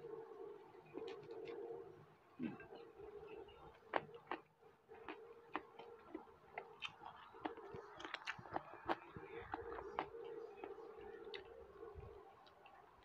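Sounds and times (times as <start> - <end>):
faint steady hum: 0.0 - 13.0
mouth clicks and smacks eating: 0.9 - 1.6, 3.7 - 13.0.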